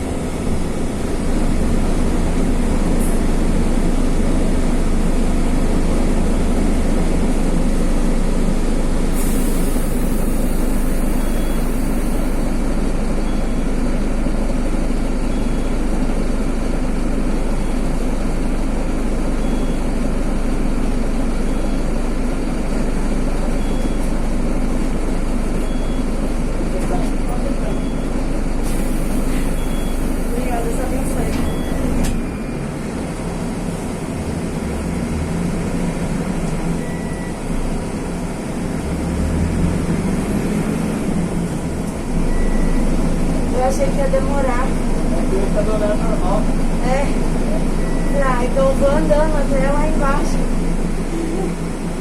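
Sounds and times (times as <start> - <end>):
bus diesel engine running: 0.0 - 52.0
air hiss: 9.2 - 12.4.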